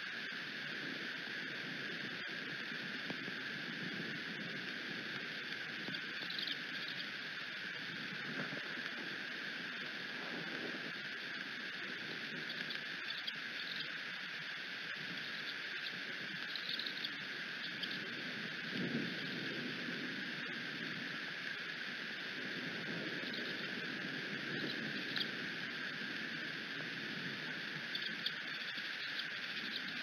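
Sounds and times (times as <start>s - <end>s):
rain pattering: 15.2s - 30.0s.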